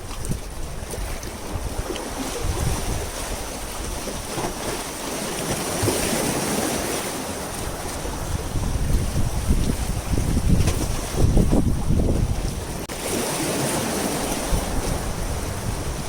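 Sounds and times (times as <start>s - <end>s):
wind buffeting the microphone: 0.0s - 4.8s, 7.4s - 12.9s, 14.0s - 16.0s
sea waves washing ashore: 0.0s - 16.0s.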